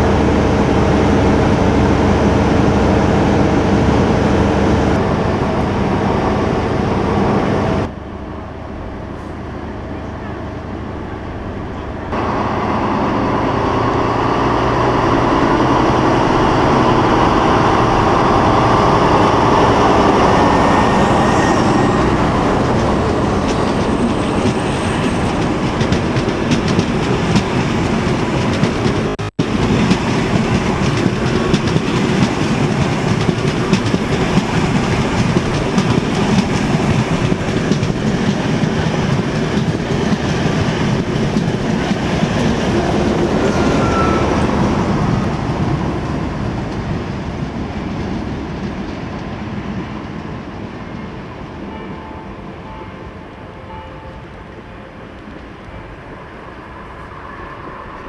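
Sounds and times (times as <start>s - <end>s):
diesel train running past: 0.0s - 58.0s
wheels clattering over rails: 21.9s - 47.6s.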